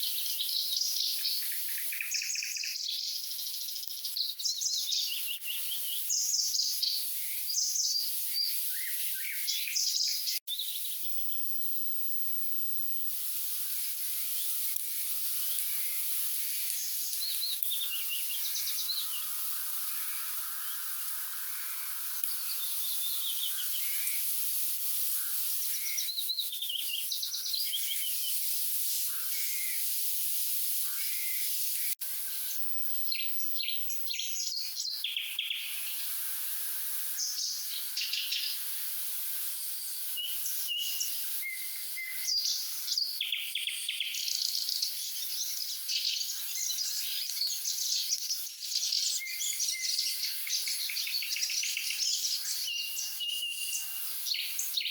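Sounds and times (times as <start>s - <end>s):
steady high hiss: 10.6s - 26.1s, 27.8s - 34.9s
nightingales singing: 30.8s - 35.9s, 39.8s - 54.9s.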